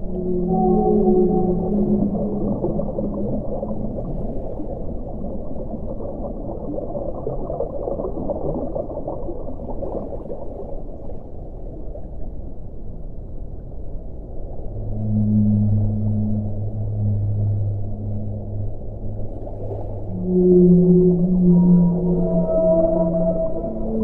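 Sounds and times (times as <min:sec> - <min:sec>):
low drawn-out tone: 0:00.0 - 0:06.8, 0:12.2 - 0:24.0
muffled underwater rushing and bubbling: 0:00.0 - 0:24.0.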